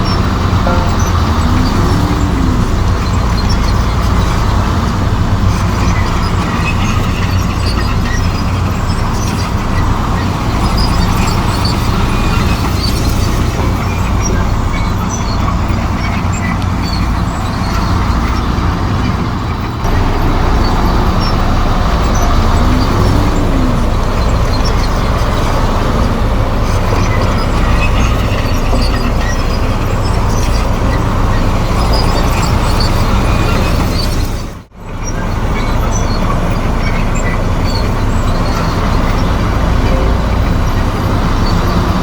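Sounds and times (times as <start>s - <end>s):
bulldozer diesel engine running: 0.0s - 42.0s
track and machinery noise: 0.0s - 42.0s.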